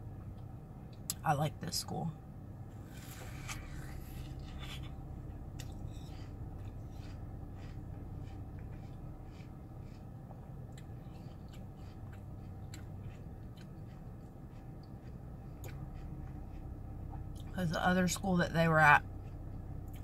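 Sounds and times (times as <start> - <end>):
low hum in car cabin: 0.0 - 20.0
person chewing watermelon: 2.8 - 17.7, 19.0 - 20.0.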